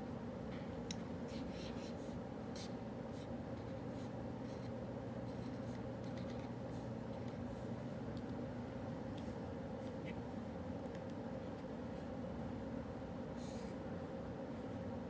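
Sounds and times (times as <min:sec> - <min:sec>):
cafe background hum: 0:00.0 - 0:15.0.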